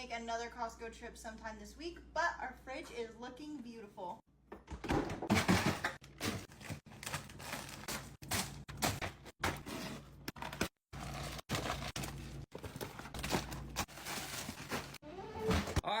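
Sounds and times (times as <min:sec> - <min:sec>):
groceries clinking and scraping: 0:05.2 - 0:16.0.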